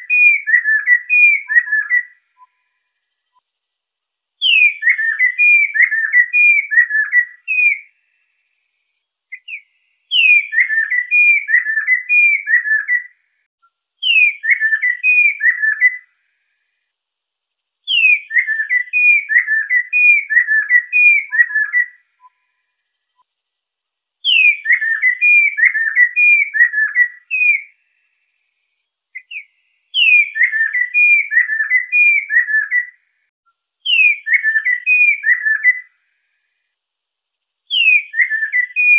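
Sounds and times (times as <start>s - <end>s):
bird whistling down-slurred notes: 0.0s - 2.8s, 4.4s - 8.0s, 9.3s - 13.2s, 14.0s - 16.1s, 17.9s - 22.6s, 24.2s - 27.7s, 29.2s - 33.0s, 33.9s - 35.9s, 37.7s - 38.9s.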